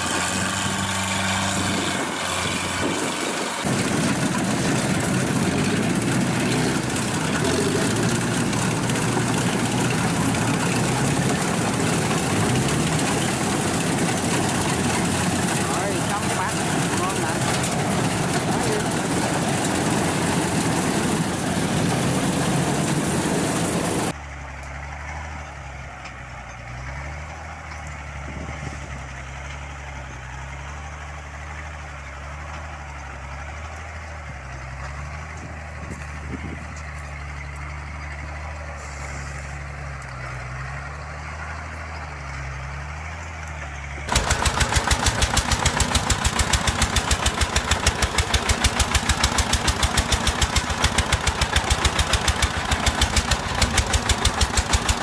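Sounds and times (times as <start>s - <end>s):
rapid engine thumping: 0.0s - 24.2s, 43.5s - 55.0s
loud engine noise: 0.0s - 55.0s
low steady engine hum: 0.0s - 55.0s.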